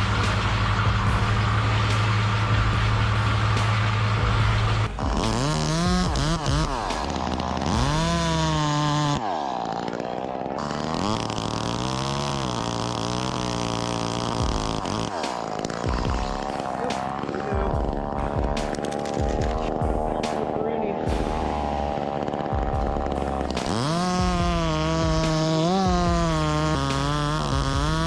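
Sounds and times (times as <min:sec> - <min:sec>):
low engine drone: 0:00.0 - 0:09.3, 0:15.8 - 0:28.0
chainsaw engine revving: 0:00.0 - 0:28.0.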